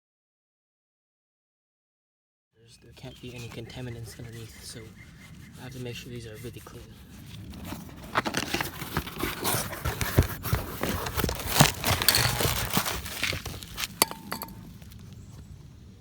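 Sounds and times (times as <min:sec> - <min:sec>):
cloth rubbing on wheel: 0:02.8 - 0:14.5
handling rustles and knocks: 0:06.6 - 0:15.6.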